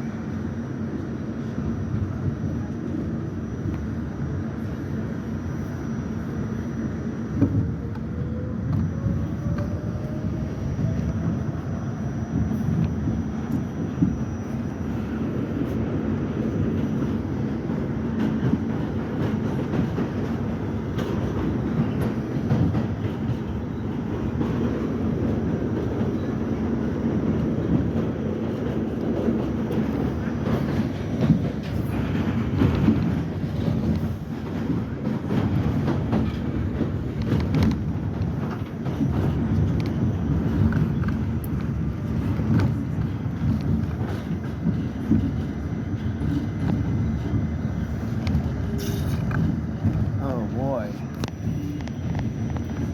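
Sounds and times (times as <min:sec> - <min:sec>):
subway train rumble: 0:00.0 - 0:52.9.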